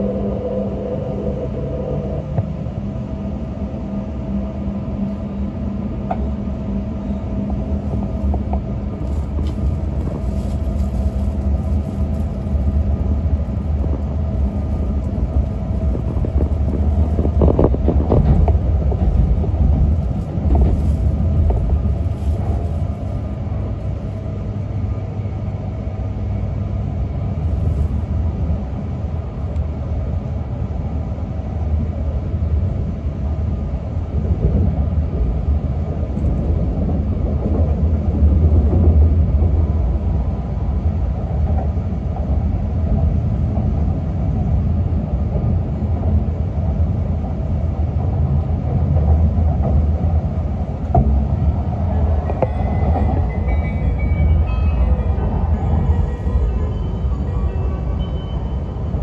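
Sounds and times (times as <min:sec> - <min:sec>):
low rumble of wheels on track: 0:00.0 - 0:59.0.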